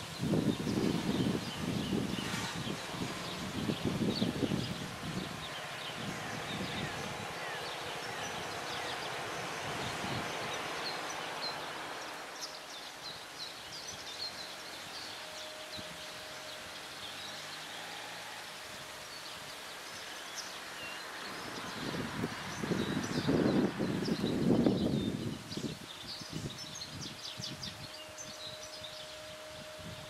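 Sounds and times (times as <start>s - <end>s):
steady background hiss: 0.0s - 30.0s
small birds chirping: 19.0s - 29.5s.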